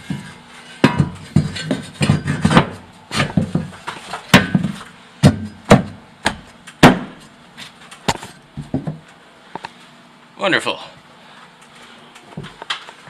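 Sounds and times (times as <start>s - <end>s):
knocks and bangs on steel: 0.1s - 3.7s.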